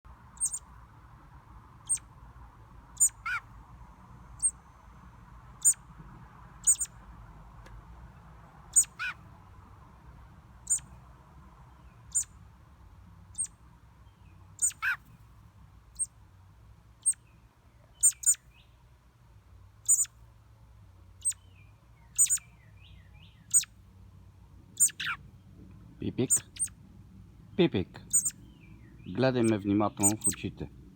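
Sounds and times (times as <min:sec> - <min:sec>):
small bird chirping: 0:00.3 - 0:00.8, 0:01.8 - 0:02.1, 0:02.9 - 0:03.5, 0:04.1 - 0:05.9, 0:06.6 - 0:07.0, 0:08.7 - 0:09.2, 0:10.6 - 0:11.0, 0:11.7 - 0:12.4, 0:13.3 - 0:15.2, 0:15.9 - 0:16.2, 0:17.0 - 0:18.8, 0:19.8 - 0:20.2, 0:21.1 - 0:23.8, 0:24.7 - 0:25.5, 0:26.2 - 0:26.8, 0:27.5 - 0:30.5.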